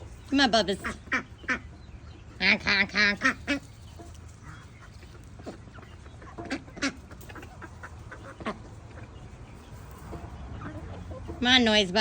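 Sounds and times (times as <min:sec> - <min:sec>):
ducks quacking: 0:00.3 - 0:09.5.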